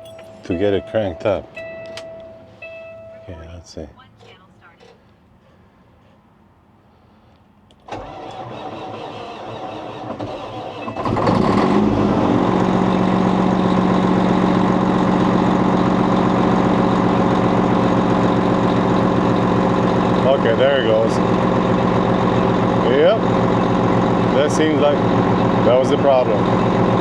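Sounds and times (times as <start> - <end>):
diesel engine idling: 0.0 - 7.3, 7.9 - 27.0
truck starter cranking: 7.7 - 27.0.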